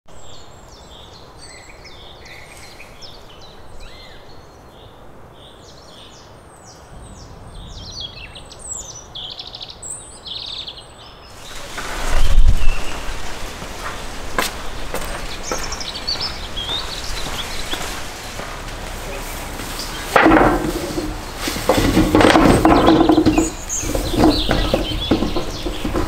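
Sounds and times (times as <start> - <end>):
faint outdoor background: 0.1 - 26.0
songbirds chirping: 0.1 - 26.0
broad loud noise: 12.4 - 26.0.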